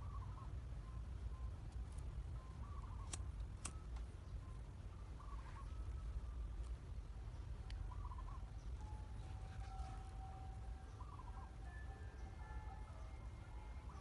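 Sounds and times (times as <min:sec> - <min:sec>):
bird warbling call: 0:02.4 - 0:03.2, 0:07.9 - 0:08.6
sharp clicks: 0:03.0 - 0:04.1.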